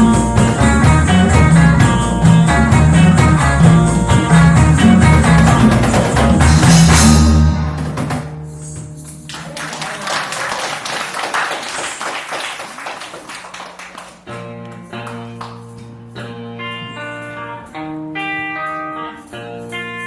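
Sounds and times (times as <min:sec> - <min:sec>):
reggae band closing chord: 0:00.0 - 0:08.4
audience clapping: 0:05.1 - 0:06.5, 0:09.2 - 0:15.7.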